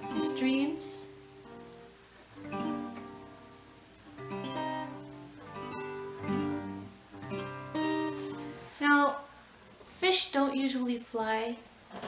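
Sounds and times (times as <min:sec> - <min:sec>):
acoustic guitar strummed slowly: 0:00.0 - 0:08.8.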